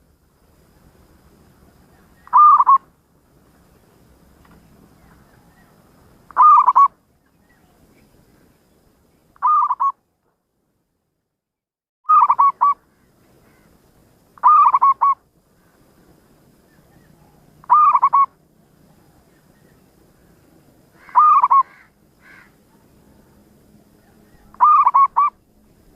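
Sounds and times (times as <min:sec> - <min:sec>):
dove cooing: 0:02.0 - 0:02.8, 0:06.3 - 0:06.9, 0:09.4 - 0:09.9, 0:12.1 - 0:12.8, 0:14.4 - 0:15.2, 0:16.9 - 0:19.2, 0:21.0 - 0:23.2, 0:23.9 - 0:25.4.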